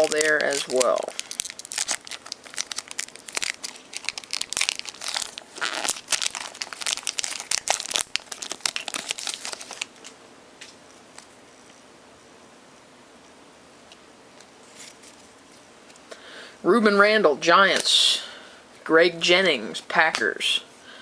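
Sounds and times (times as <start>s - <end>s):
wrapper being torn and crinkled: 0.0s - 10.1s.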